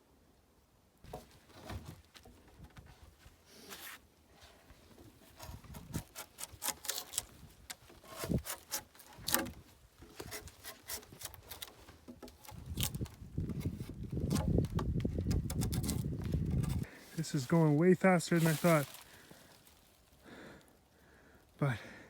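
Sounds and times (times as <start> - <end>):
low rustling and scraping: 1.1 - 20.0
dry wood snapping and crackling: 5.2 - 16.9
footsteps through brush: 16.2 - 20.2.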